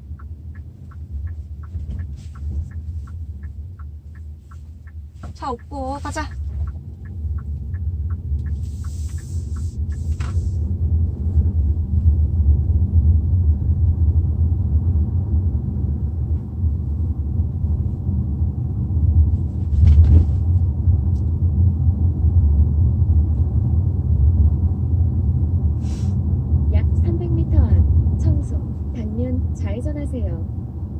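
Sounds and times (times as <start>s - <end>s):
turn signal ticks: 0.0s - 11.6s
road and engine rumble in cabin: 0.0s - 30.9s
short hisses: 25.8s - 26.2s.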